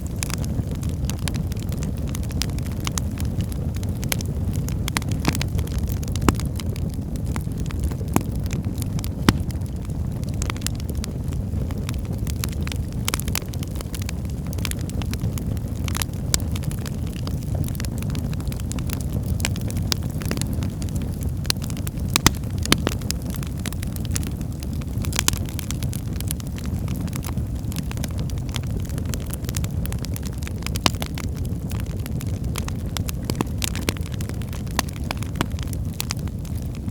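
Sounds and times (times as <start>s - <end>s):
fire flames rumbling: 0.0s - 36.9s
logs crackling and popping: 0.0s - 36.9s.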